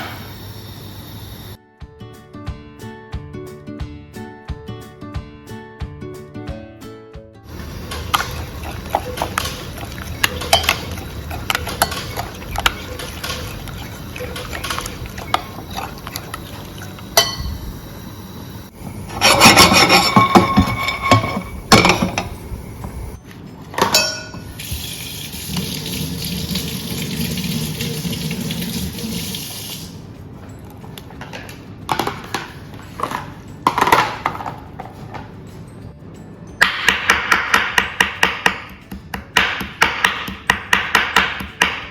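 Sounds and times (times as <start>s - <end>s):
tap water running into sink: 7.5s - 17.2s, 24.6s - 30.0s
dishes clinking and knocking: 7.8s - 17.6s, 19.1s - 22.4s, 23.7s - 24.5s, 31.2s - 35.3s.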